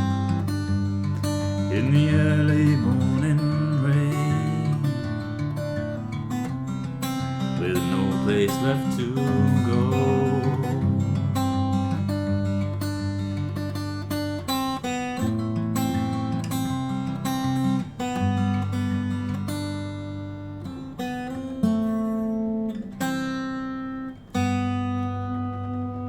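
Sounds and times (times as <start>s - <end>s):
acoustic guitar strumming chords: 0.0s - 26.0s.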